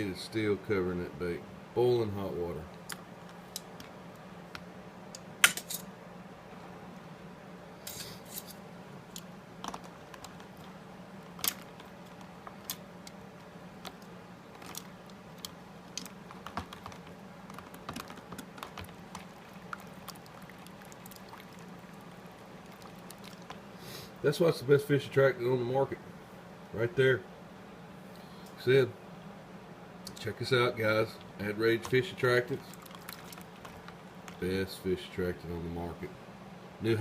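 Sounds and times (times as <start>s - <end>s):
faint low hum: 0.0s - 37.0s
objects being handled clicking: 9.2s - 10.7s, 13.8s - 20.2s.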